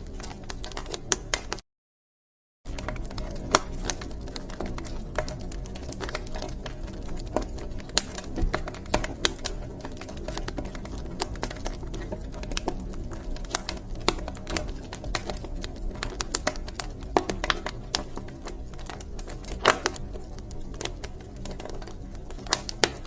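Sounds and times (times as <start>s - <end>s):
low rumble of flames: 0.0s - 1.6s, 2.7s - 23.0s
wood fire crackling: 0.0s - 1.6s, 2.7s - 23.0s.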